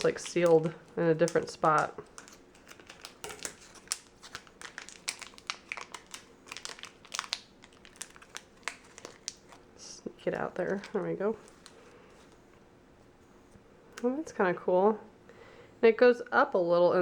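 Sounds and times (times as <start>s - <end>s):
plastic packet crinkling: 0.0s - 12.4s.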